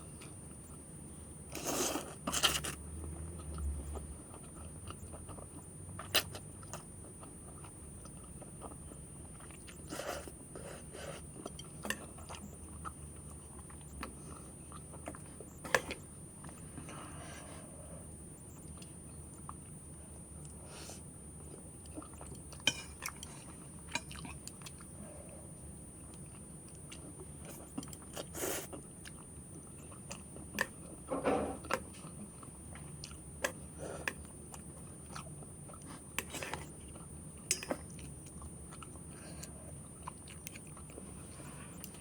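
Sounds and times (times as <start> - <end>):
person chewing food: 1.5 - 17.7, 18.4 - 25.4, 26.0 - 42.0.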